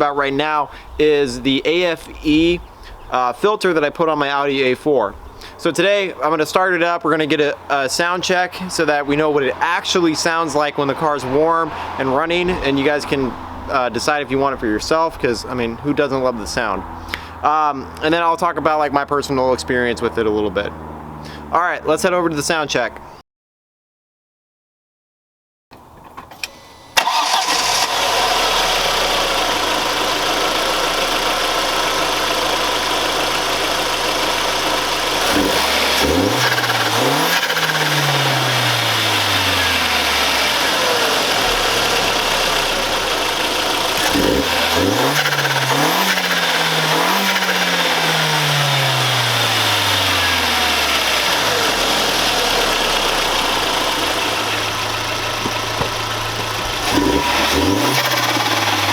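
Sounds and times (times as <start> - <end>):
car engine idling and revving: 0.0 - 3.2, 6.3 - 21.6, 27.0 - 58.9.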